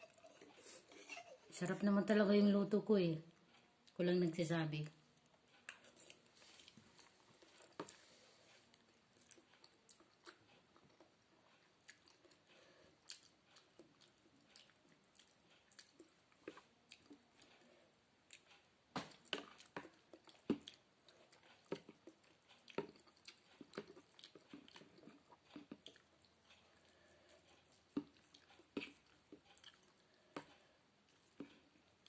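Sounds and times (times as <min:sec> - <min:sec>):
close-up chewing noodles: 0:00.0 - 0:01.6, 0:05.2 - 0:32.0.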